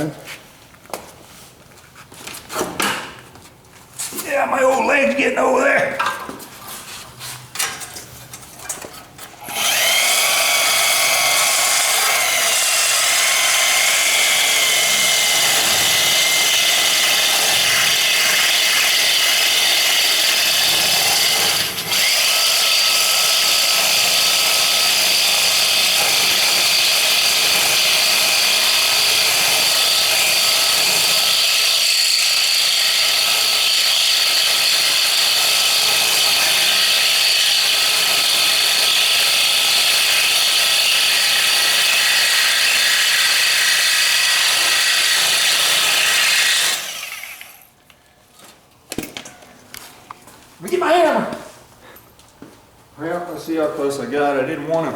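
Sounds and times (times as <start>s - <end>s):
power cutting tool whining: 9.4s - 47.6s.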